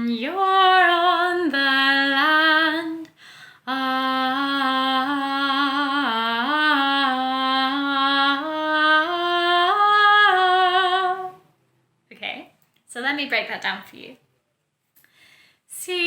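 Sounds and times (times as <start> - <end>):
woman singing wordless melody: 0.0 - 11.5, 15.7 - 16.0.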